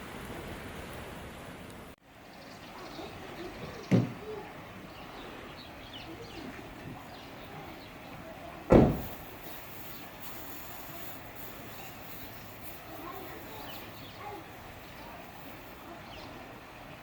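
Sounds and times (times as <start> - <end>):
low background noise: 0.0 - 17.0
dull thump: 3.8 - 4.2, 8.7 - 9.2.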